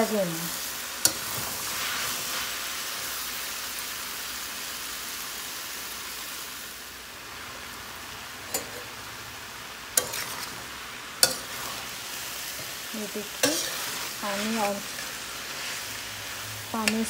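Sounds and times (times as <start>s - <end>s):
vegetables sizzling in a frying pan: 0.0s - 17.0s
metal spatula stirring: 8.5s - 8.9s, 10.0s - 17.0s.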